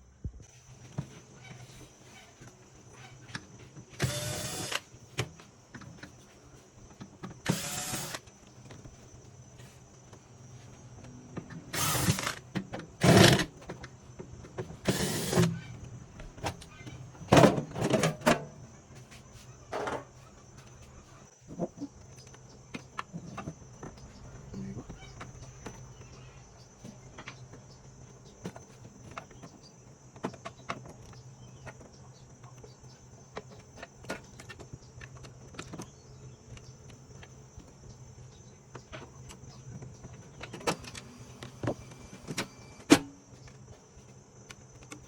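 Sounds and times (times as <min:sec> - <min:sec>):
cordless screwdriver whirring: 0:04.0 - 0:04.9, 0:07.4 - 0:08.3, 0:11.7 - 0:12.4, 0:14.8 - 0:15.6.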